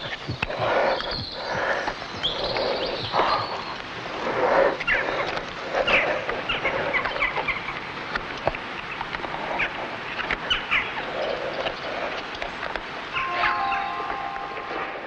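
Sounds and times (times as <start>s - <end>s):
birds chirping: 0.0s - 15.0s
outdoor background hiss: 0.0s - 15.0s.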